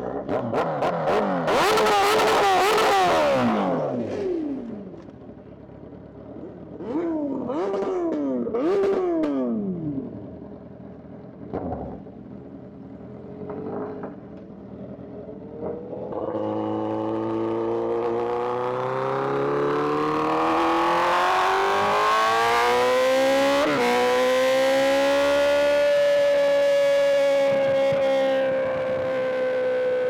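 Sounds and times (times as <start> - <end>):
motorcycle engine accelerating: 0.0 - 5.3, 11.4 - 30.0.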